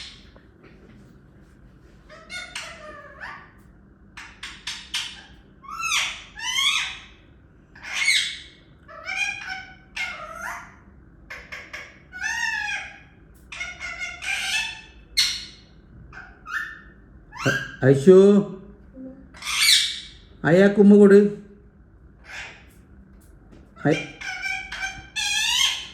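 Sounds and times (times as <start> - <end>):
parrot whistles and squawks: 4.2 - 17.8, 19.3 - 20.3, 22.2 - 22.8, 24.0 - 25.9.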